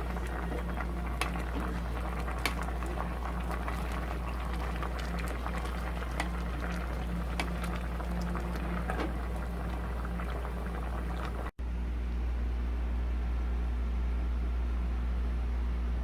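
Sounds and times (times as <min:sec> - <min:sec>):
stew bubbling in a pot: 0:00.0 - 0:11.6
low hum: 0:00.0 - 0:16.0.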